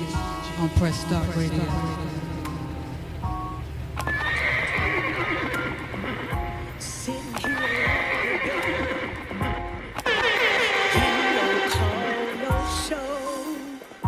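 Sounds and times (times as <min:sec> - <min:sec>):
background music: 0:00.0 - 0:14.0
horse neighing: 0:04.0 - 0:13.1.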